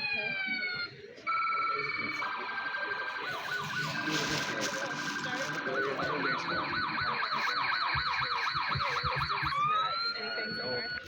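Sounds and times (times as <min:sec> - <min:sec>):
crowd chatter: 0:00.0 - 0:11.0
electronic siren yelping: 0:01.5 - 0:11.0.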